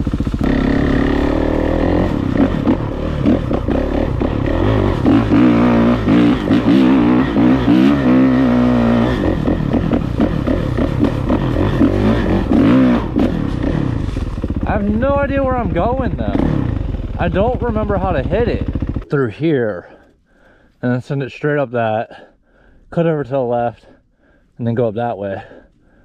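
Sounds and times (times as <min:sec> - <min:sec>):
dirt bike engine revving: 0:00.0 - 0:19.1.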